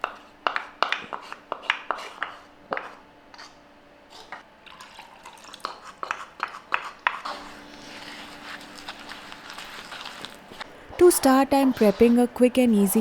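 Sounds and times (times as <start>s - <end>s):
utensils and dishes clinking: 7.2s - 13.0s.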